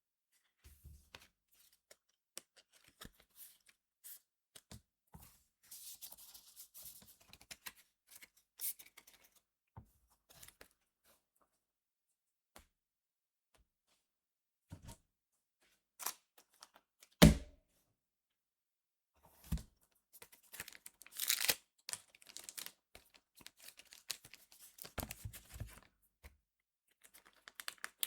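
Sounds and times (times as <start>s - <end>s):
foil and card crinkling: 20.5s - 22.8s, 23.4s - 25.2s, 27.2s - 28.0s.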